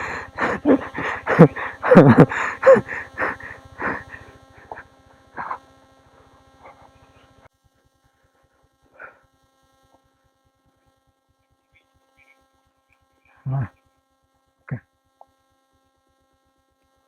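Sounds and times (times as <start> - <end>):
steady hum: 0.0 - 17.0
faint voices: 13.4 - 13.8.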